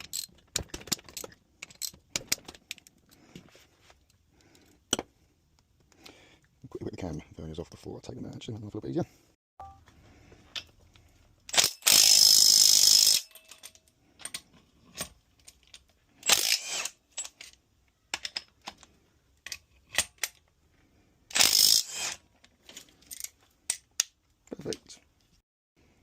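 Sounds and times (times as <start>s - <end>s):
metal tools clinking: 13.0s - 16.4s, 22.5s - 23.9s.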